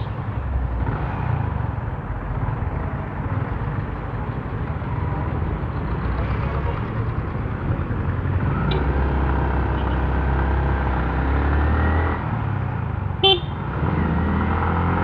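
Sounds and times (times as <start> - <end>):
vehicle horn toot: 13.2 - 13.6
motorcycle engine accelerating: 13.6 - 15.0.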